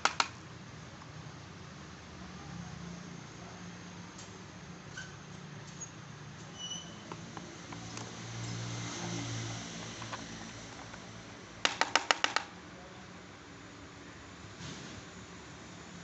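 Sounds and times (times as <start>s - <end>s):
sharp clicks: 0.0s - 0.4s, 9.8s - 12.6s.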